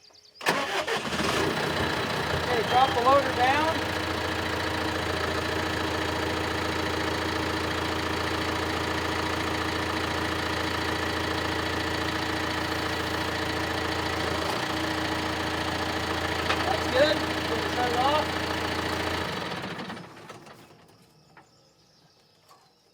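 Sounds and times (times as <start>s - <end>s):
tractor diesel engine idling: 0.4s - 20.7s.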